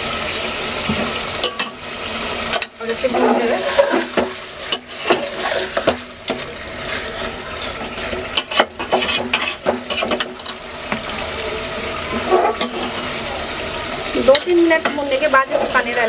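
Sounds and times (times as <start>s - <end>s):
food sizzling in pot: 0.0s - 16.0s
spatula scraping pot: 2.9s - 11.0s, 12.1s - 13.2s.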